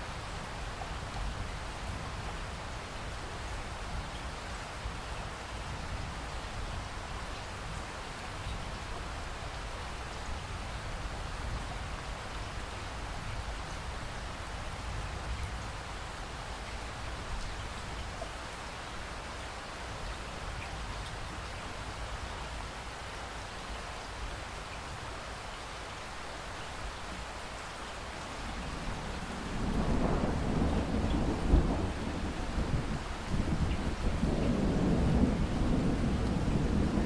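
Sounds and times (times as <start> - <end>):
steady rain falling: 0.0 - 37.0
thunder rumbling: 28.4 - 37.0.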